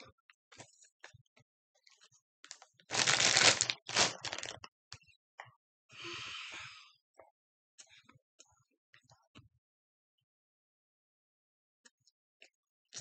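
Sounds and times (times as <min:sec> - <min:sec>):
crackers being crunched: 0:02.9 - 0:04.6.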